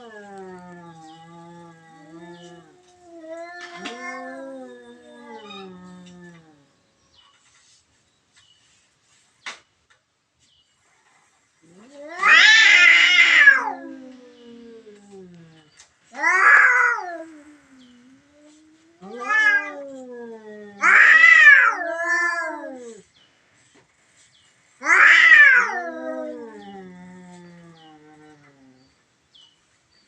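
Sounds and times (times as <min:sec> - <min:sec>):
cat yowling: 0:00.0 - 0:06.5, 0:11.7 - 0:15.6, 0:16.2 - 0:23.0, 0:24.8 - 0:28.8.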